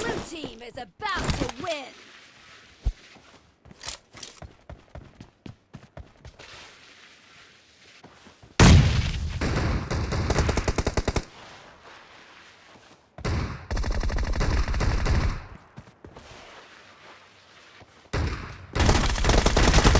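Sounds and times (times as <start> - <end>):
video game automatic gunfire: 9.4 - 11.2, 13.3 - 15.5, 18.4 - 19.9.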